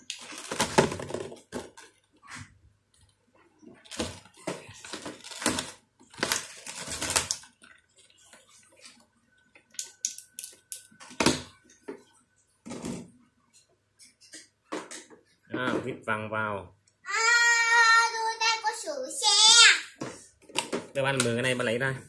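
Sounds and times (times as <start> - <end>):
plastic parts clicking and rattling: 0.0 - 2.2, 3.8 - 8.9.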